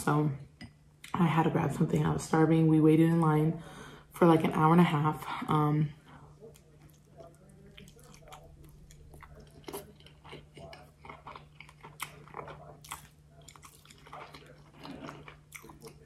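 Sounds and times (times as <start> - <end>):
person chewing food: 6.4 - 16.0.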